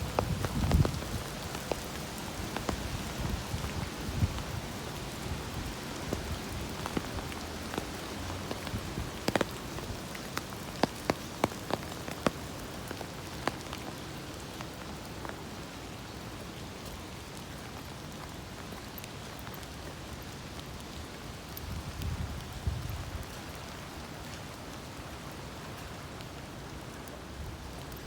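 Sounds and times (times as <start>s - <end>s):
rain pattering: 0.0s - 28.0s.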